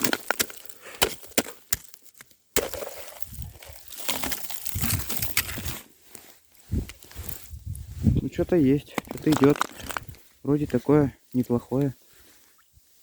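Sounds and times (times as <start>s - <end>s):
ice and fishing gear cracking: 0.0s - 5.8s, 8.8s - 10.2s.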